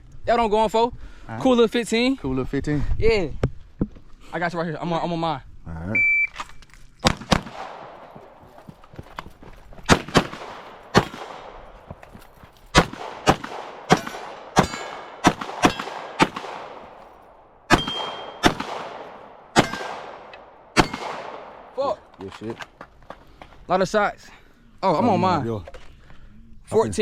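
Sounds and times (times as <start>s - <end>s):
handgun shots echoing: 7.0s - 8.2s, 9.9s - 11.9s, 12.7s - 21.8s.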